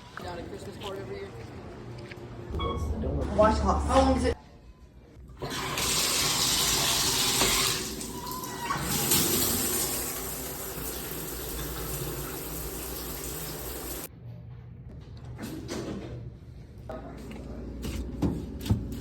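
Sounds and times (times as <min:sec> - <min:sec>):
water running: 0:05.4 - 0:14.1.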